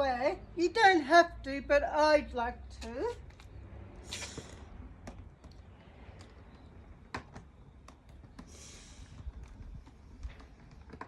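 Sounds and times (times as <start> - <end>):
brief swish: 4.0 - 4.7.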